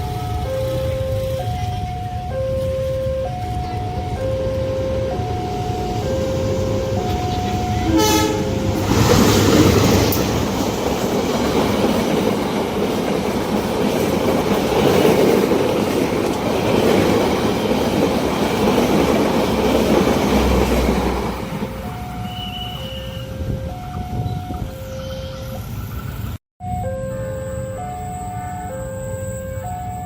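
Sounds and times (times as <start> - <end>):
level crossing alarm two tones: 0.0 - 9.4, 21.7 - 25.5, 26.6 - 30.0
train passing rumble and clatter: 0.0 - 26.4
train horn blast: 6.1 - 10.2.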